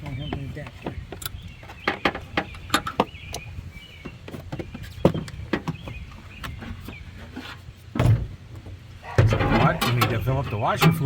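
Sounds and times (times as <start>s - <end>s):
hand tools clicking and knocking: 9.1s - 11.0s.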